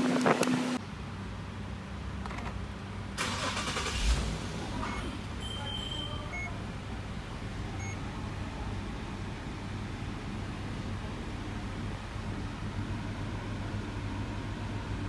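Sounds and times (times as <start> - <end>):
car engine cranking: 0.0 - 0.8, 3.2 - 5.0
car engine idling: 0.0 - 5.4.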